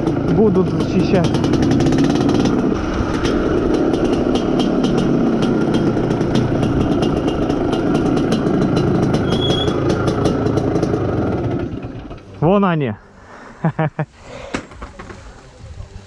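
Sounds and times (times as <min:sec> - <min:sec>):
motorcycle engine running: 0:00.0 - 0:12.8.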